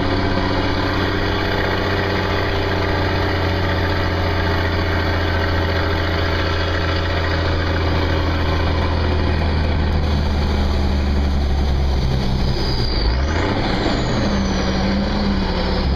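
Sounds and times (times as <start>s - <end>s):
truck engine running: 0.0s - 15.9s
turbo whistle: 12.4s - 15.3s.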